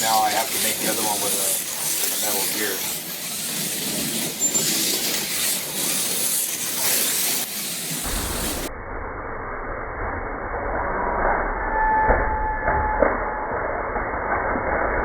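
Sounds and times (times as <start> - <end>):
slot car motors whirring: 0.0 - 8.7.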